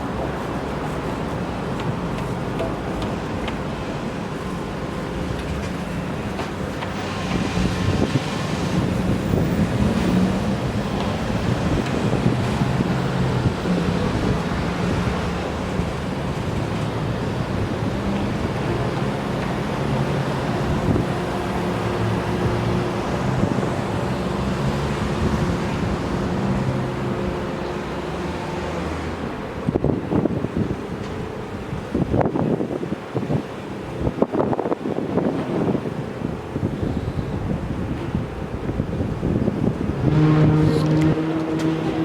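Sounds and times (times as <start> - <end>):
wind buffeting microphone: 0.0 - 42.0
engine humming: 4.3 - 31.2, 39.5 - 42.0.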